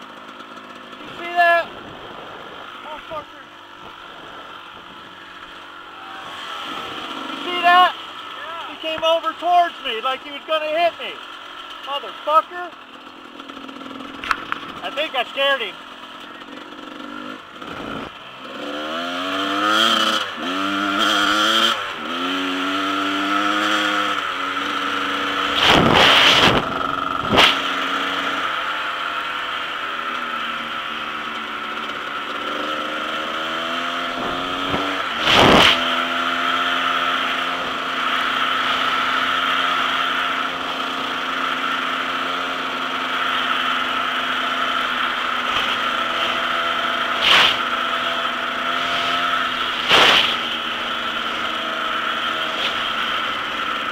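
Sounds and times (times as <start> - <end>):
dirt bike engine revving: 0.0 - 53.9
loud short rushes of noise: 25.5 - 27.8, 34.2 - 36.0, 47.2 - 47.7, 48.8 - 50.6.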